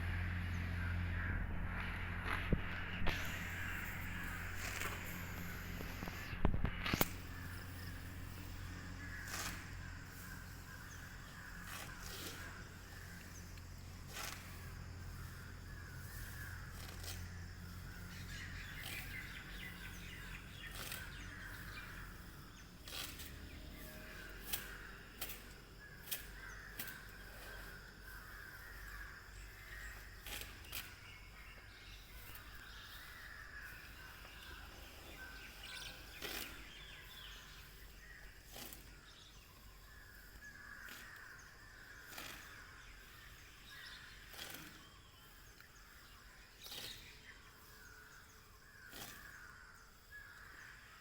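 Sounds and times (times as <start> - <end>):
harsh caw-like bird calls: 0.0 - 6.2, 7.2 - 22.7, 23.8 - 38.2, 39.8 - 45.3
low hum: 0.0 - 26.8.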